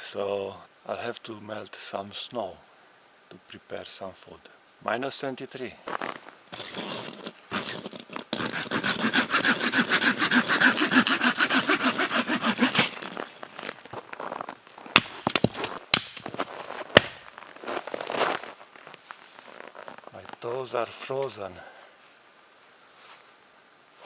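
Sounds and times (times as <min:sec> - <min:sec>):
hand saw cutting wood: 0:06.6 - 0:13.7, 0:15.0 - 0:16.4
sharp cracks or knocks: 0:14.9 - 0:17.3.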